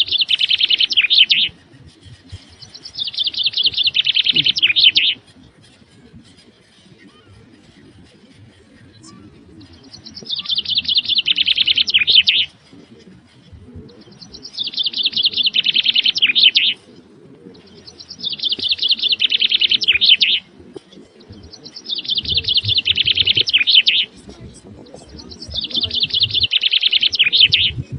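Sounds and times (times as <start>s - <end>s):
songbird singing: 0.0s - 27.9s.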